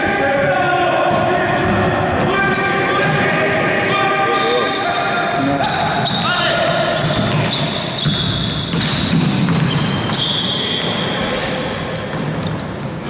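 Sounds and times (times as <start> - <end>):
sneakers squeaking on floor: 0.0 - 13.0
basketball bouncing: 7.0 - 10.2.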